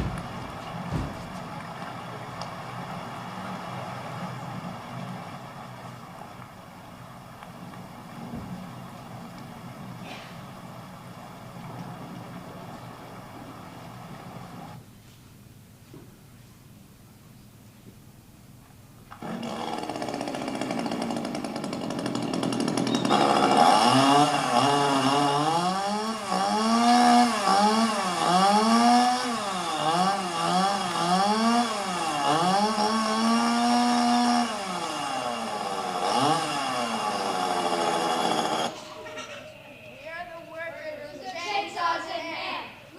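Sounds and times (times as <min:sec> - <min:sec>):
chainsaw revving: 0:19.1 - 0:38.9.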